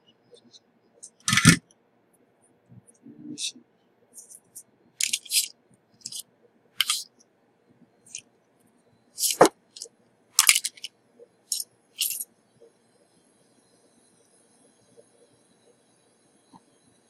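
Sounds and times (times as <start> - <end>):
faint high whine: 0.0 - 17.0
hand tools scraping: 4.2 - 6.2, 6.8 - 7.0, 9.2 - 10.9, 11.5 - 12.2.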